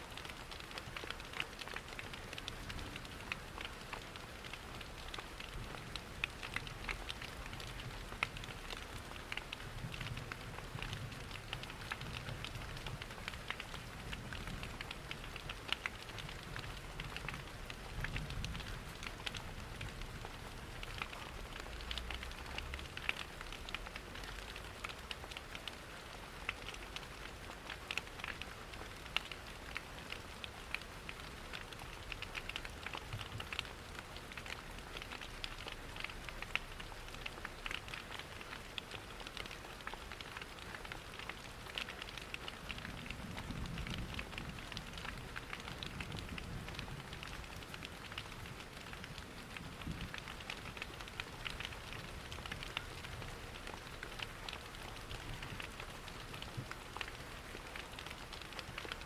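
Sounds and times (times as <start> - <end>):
steady rain falling: 0.0 - 59.0
wood fire crackling: 0.2 - 6.1, 20.8 - 25.6, 30.1 - 59.0.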